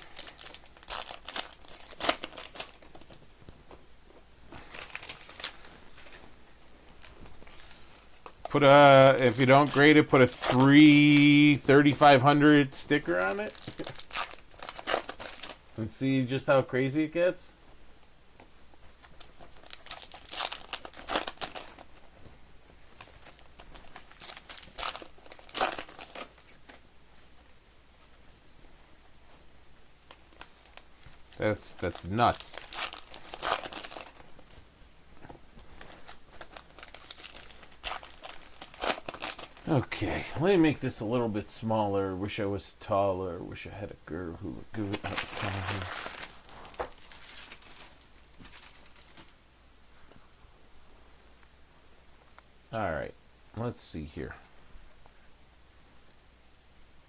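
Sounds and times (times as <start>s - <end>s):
wrappers torn and crinkled: 0.0s - 3.2s, 4.5s - 6.2s, 7.0s - 11.4s, 13.0s - 15.7s, 19.0s - 22.0s, 23.0s - 26.8s, 30.0s - 34.5s, 35.8s - 39.8s, 44.8s - 49.4s
handling rustle: 0.0s - 39.7s, 44.7s - 49.4s.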